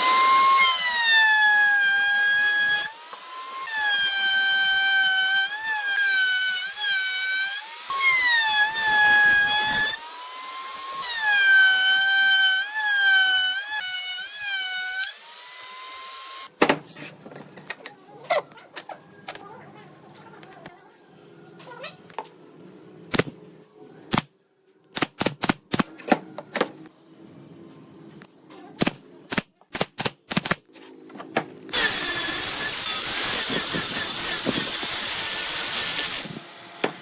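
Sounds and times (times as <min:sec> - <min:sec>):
power tool whining into wood: 0:31.7 - 0:37.0.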